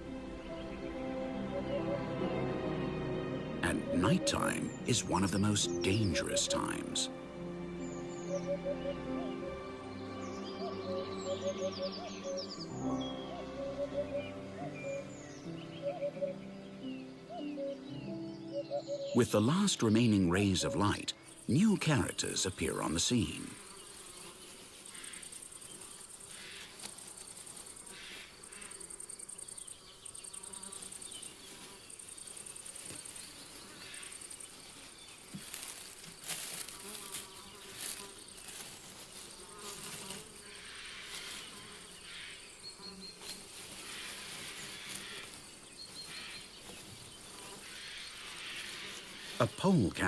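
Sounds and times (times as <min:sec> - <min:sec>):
crickets trilling: 0:03.7 - 0:07.1, 0:19.1 - 0:50.0.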